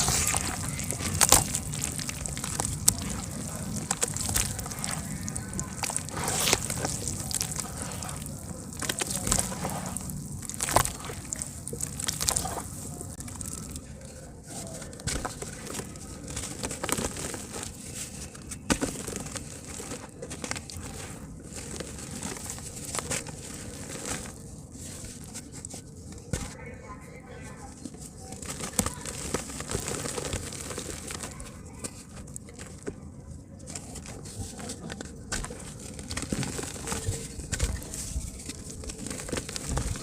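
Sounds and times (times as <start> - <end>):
dirt crumbling in water: 0.0 - 14.1, 28.4 - 31.4, 35.0 - 40.0.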